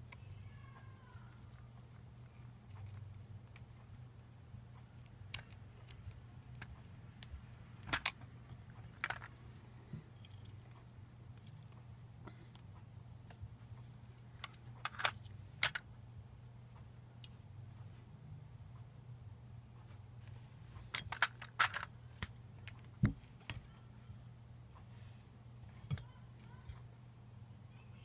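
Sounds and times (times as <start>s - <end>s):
low steady hum: 0.0s - 28.0s
small metal parts clicking: 5.0s - 9.4s, 10.1s - 11.8s, 14.1s - 15.9s, 20.9s - 22.8s.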